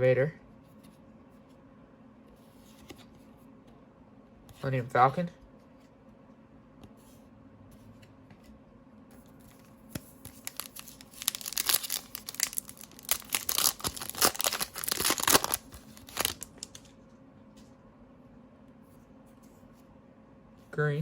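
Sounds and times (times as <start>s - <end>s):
wrapper tearing and crinkling: 10.2s - 16.9s.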